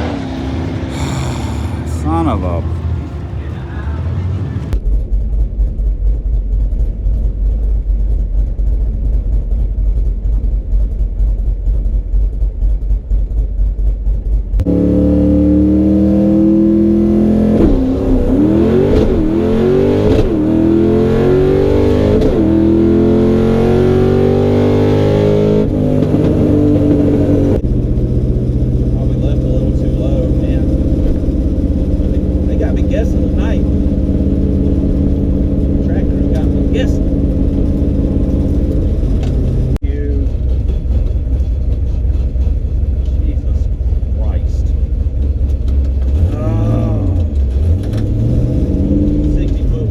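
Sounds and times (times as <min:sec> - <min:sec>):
car engine lumpy idle: 0:00.0 - 0:04.8
engine revving through gears: 0:00.0 - 0:04.8, 0:14.6 - 0:39.8, 0:45.5 - 0:49.9.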